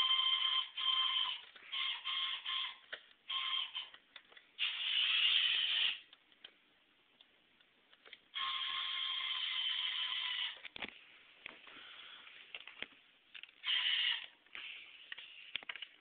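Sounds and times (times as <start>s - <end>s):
toy motor and gears whining: 0.0s - 4.0s, 4.6s - 6.1s, 8.3s - 10.6s, 13.6s - 14.8s.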